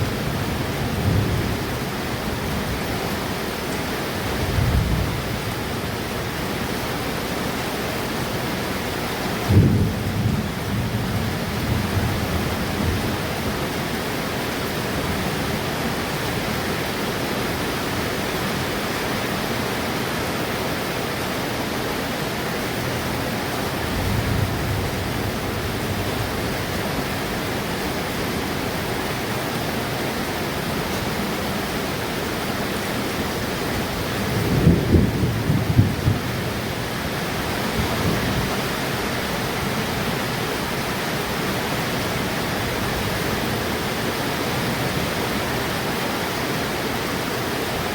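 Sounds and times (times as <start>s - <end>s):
steady rain falling: 0.0s - 47.9s
thunder clap and rumble: 4.3s - 5.4s, 9.4s - 13.6s, 23.8s - 27.5s, 33.8s - 38.8s.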